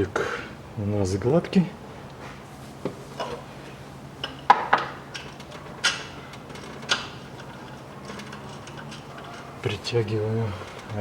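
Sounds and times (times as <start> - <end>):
faint steady hum: 0.0 - 11.0
metallic clinks of a spanner: 4.2 - 11.0.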